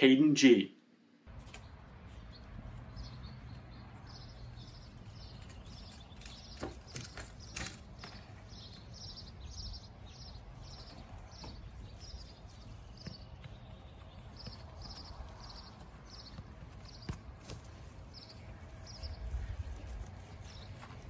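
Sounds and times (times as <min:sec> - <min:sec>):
bird chirping: 0:01.3 - 0:21.0.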